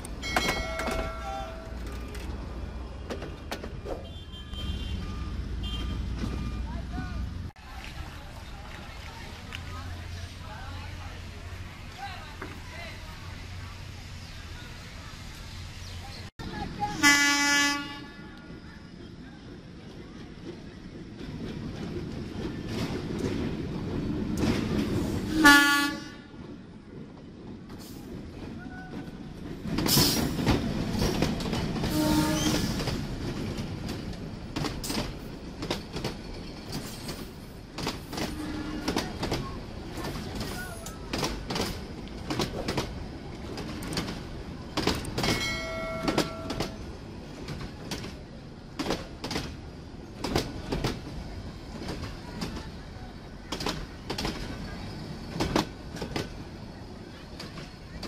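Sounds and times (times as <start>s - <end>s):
wheels clacking over rail joints: 0.0s - 4.2s, 26.4s - 58.0s
locomotive rumbling: 0.0s - 58.0s
train horn blast: 17.0s - 18.2s, 25.3s - 26.4s, 31.9s - 32.8s, 38.3s - 39.0s.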